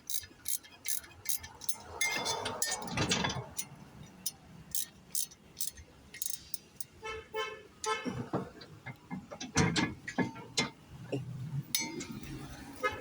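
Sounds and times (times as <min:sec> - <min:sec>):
hand tools clicking on metal: 0:00.0 - 0:07.0, 0:11.7 - 0:13.0.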